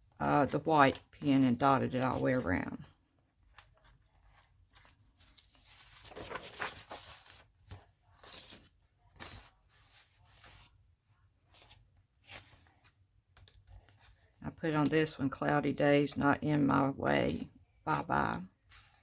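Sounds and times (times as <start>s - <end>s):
paper pages rustling: 3.2s - 14.8s, 17.9s - 19.0s.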